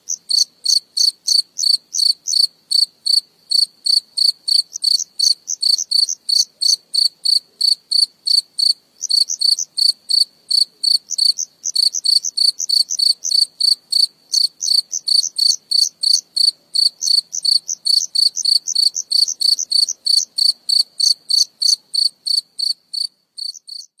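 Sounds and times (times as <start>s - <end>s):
cricket chirping: 0.0s - 24.0s.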